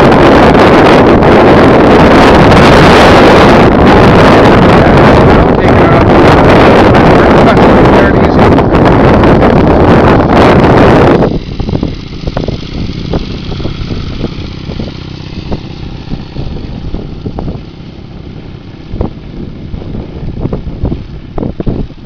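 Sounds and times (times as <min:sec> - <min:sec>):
motorcycle engine at low revs: 0:00.0 - 0:22.0
wind buffeting microphone: 0:00.0 - 0:22.0.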